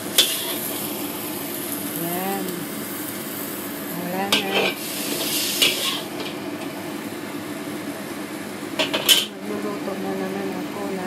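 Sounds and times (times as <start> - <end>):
food sizzling in a pan: 0.0 - 11.0
utensil scraping a pan: 4.3 - 6.4.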